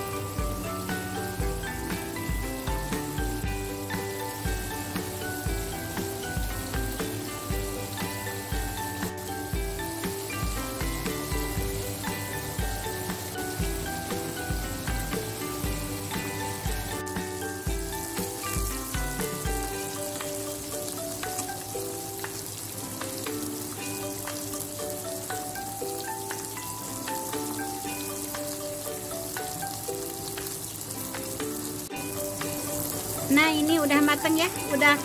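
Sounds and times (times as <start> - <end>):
background music melody: 0.0 - 35.0
chicken deep-frying sizzle: 0.0 - 35.0.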